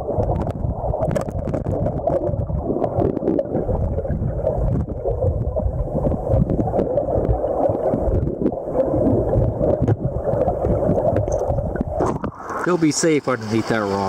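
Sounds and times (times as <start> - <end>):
river water rushing and gurgling: 6.1 - 14.0.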